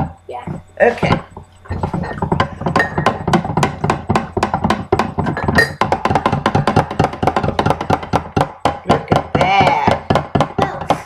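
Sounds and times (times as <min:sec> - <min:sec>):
spoon clinking against glass: 0:01.8 - 0:03.3, 0:05.3 - 0:05.8.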